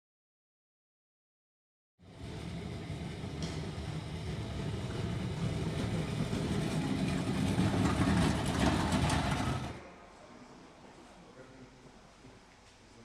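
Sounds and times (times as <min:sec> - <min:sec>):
heavy machinery engine running: 0:02.0 - 0:09.8.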